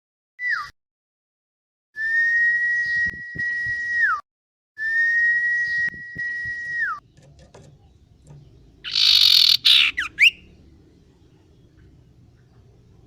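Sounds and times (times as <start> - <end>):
bird whistling long level notes: 2.0 - 4.2, 4.8 - 7.0, 8.9 - 10.4.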